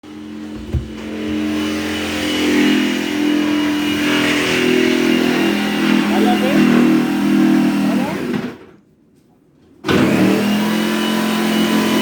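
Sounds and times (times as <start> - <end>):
short knock: 0.6 - 1.5
electric jigsaw cutting: 9.9 - 12.0.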